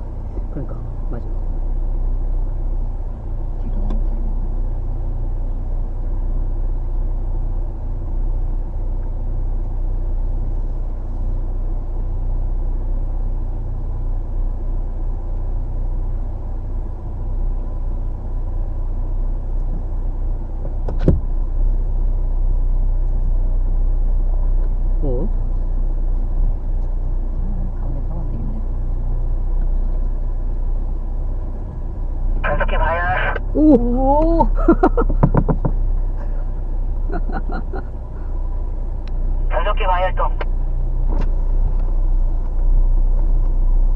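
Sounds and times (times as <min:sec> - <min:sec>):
off-road vehicle low rumble: 0:00.0 - 0:43.9.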